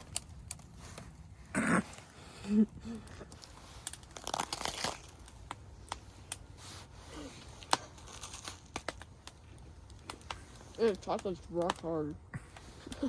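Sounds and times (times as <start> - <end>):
sharp clicks and snaps: 0.0 - 1.1, 7.4 - 13.0
wrapper crinkling and tearing: 0.0 - 13.0.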